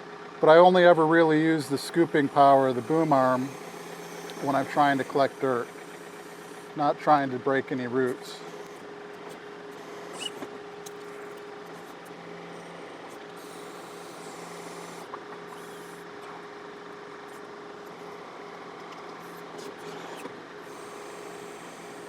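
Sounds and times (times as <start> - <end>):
tractor diesel engine running: 0.0 - 15.0
hydraulic whine: 0.0 - 22.0
hydraulic hiss: 1.7 - 6.8, 9.8 - 11.0, 19.6 - 22.0.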